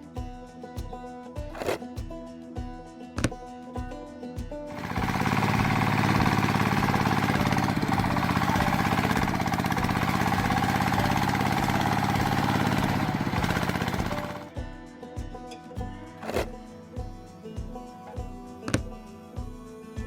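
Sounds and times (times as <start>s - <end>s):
small engine running: 1.6s - 1.8s, 4.7s - 14.5s, 16.2s - 16.6s.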